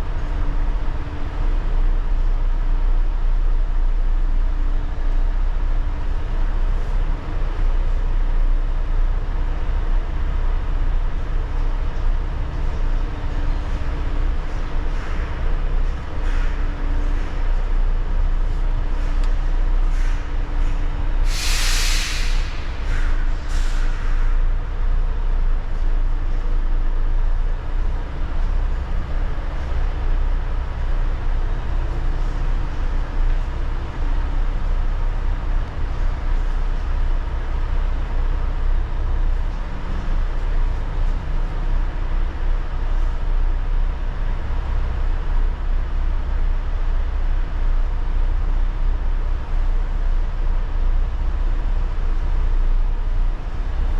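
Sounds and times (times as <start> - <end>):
diesel truck engine rumbling: 0.0 - 53.9
air brake hiss: 21.2 - 24.3.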